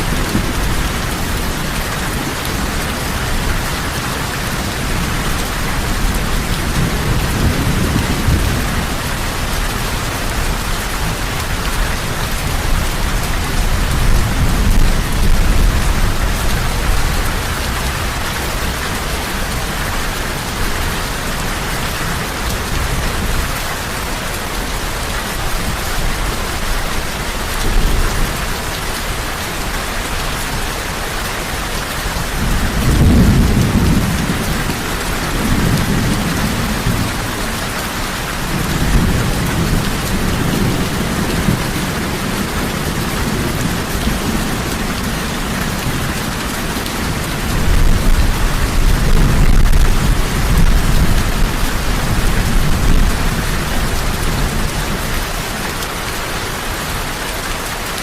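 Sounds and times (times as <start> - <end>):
heavy rain falling: 0.0 - 58.0
thunder rumbling: 32.2 - 55.3.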